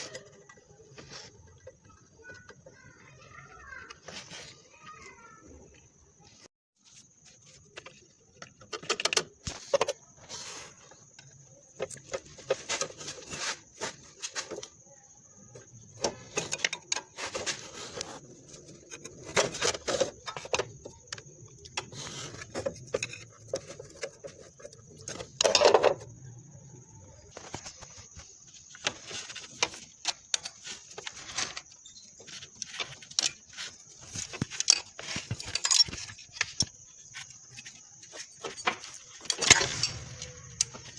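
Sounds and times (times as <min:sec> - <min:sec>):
irregular clicks and clatter: 0:07.4 - 0:10.1, 0:27.3 - 0:40.9.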